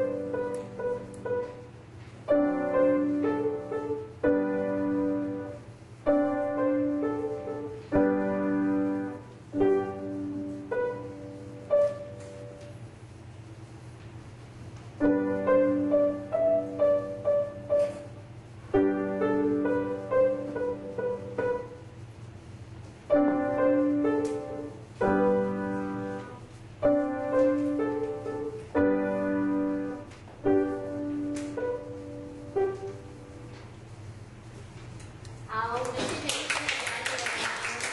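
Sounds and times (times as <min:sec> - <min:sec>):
steady low hum: 0:00.0 - 0:36.5.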